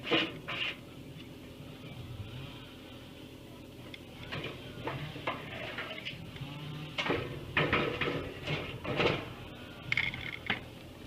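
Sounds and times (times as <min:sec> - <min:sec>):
knocks clatters and scrapes: 0:00.0 - 0:00.8, 0:04.3 - 0:06.2, 0:07.0 - 0:10.6
steady low hum: 0:00.0 - 0:11.0.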